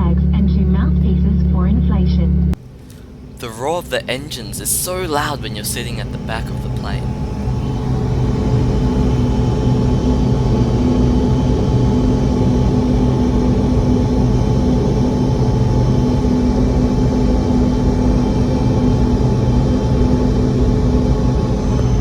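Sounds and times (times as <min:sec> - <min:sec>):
jet engines roaring in cabin: 0:03.4 - 0:22.0.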